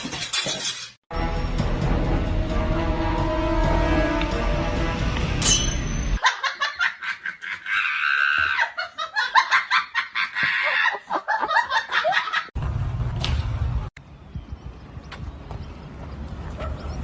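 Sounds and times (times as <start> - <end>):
high-pitched laughter bursts: 6.2 - 12.5.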